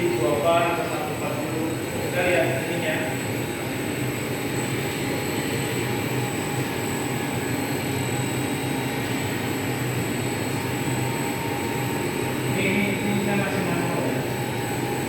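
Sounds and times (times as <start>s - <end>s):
machine humming: 0.0s - 15.0s
thin high whine: 0.0s - 15.0s.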